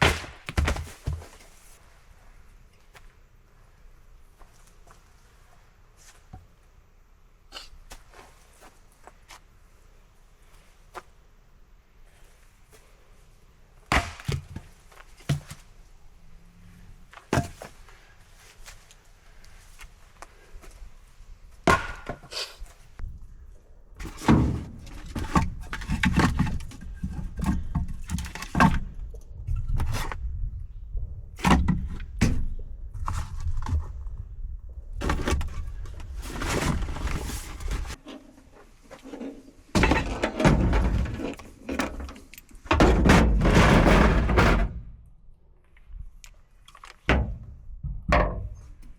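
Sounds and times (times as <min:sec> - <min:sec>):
knocks and clunks: 0:39.0 - 0:45.0, 0:47.0 - 0:48.9.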